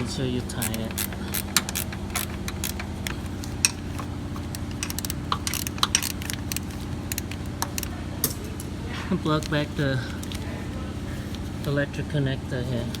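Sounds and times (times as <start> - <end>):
steady low hum: 0.0 - 13.0
hand tool clicking on bolt: 0.6 - 8.4.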